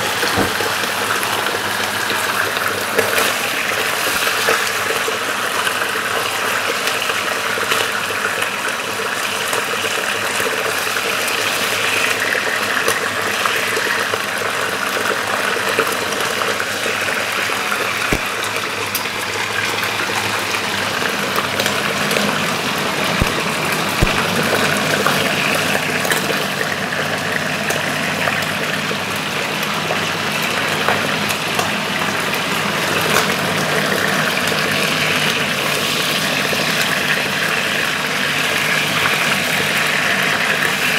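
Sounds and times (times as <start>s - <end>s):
liver sizzling in a frying pan: 0.0s - 40.9s
sharp oil pops: 23.2s - 23.4s, 24.0s - 24.3s.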